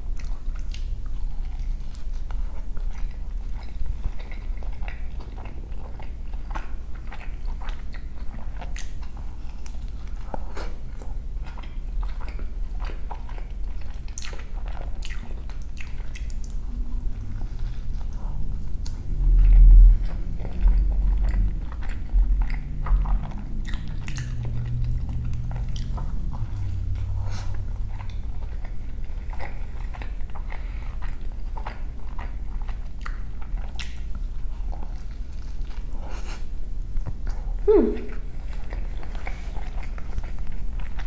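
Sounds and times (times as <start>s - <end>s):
biting and chewing food: 0.0s - 41.0s.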